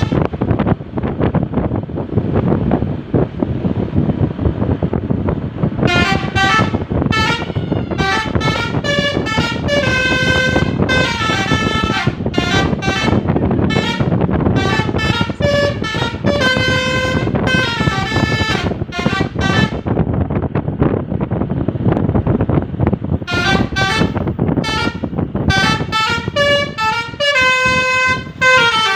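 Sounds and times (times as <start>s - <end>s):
musical air horn tooting: 0.0s - 0.4s, 5.8s - 19.9s, 23.2s - 28.9s
wind and road rumble: 0.0s - 28.9s.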